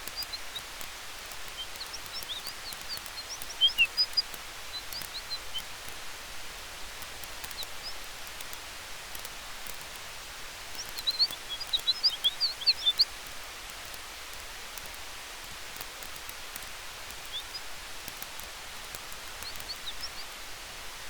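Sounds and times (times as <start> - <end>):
campfire hissing and crackling: 0.0 - 21.0
wind in trees: 0.0 - 21.0
high chirps: 1.5 - 5.7, 10.8 - 13.1.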